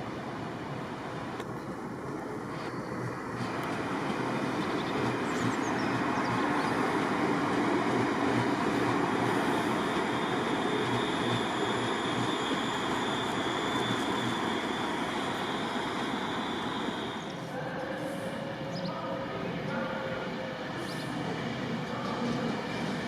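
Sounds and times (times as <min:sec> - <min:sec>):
faint high whine: 0:00.0 - 0:21.2
train wheels rumbling on track: 0:00.0 - 0:23.0.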